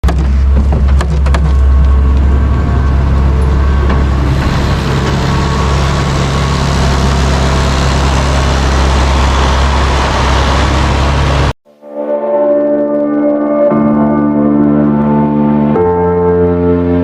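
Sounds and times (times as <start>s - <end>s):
heavy engine running: 0.0s - 11.6s.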